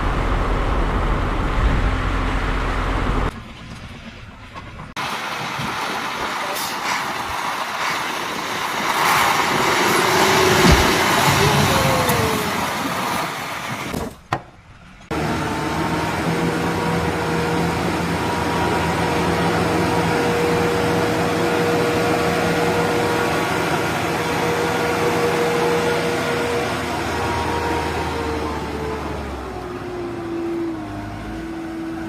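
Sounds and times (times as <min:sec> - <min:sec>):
vehicle engine running: 0:00.0 - 0:05.0.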